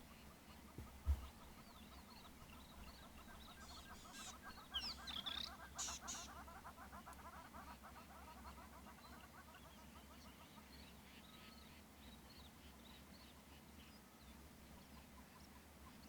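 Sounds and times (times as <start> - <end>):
birds chattering: 0.0 - 8.6
high sweeping bird calls: 1.6 - 6.6.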